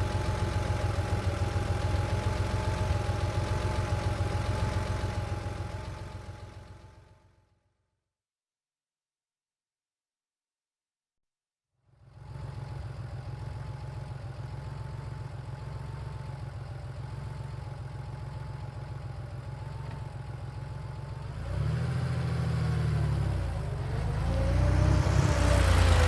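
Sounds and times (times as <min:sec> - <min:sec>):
car engine idling: 0:00.0 - 0:07.2, 0:12.2 - 0:21.2, 0:24.9 - 0:26.0.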